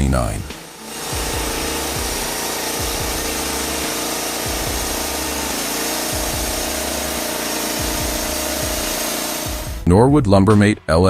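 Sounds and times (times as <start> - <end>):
band sawmill cutting log: 0.0 - 9.9.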